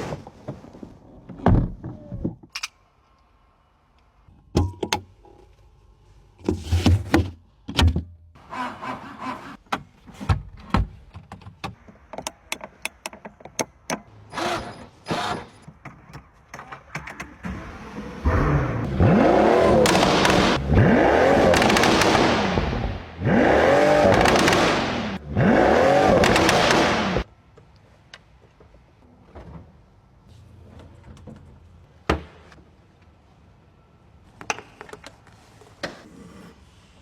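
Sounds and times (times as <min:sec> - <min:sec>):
car engine revving: 0:18.2 - 0:27.3.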